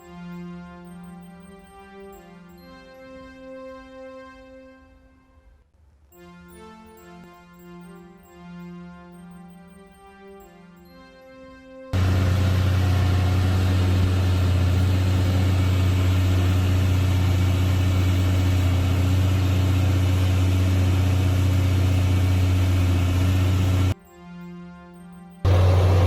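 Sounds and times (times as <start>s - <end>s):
large engine humming: 12.0s - 24.0s, 25.5s - 26.0s.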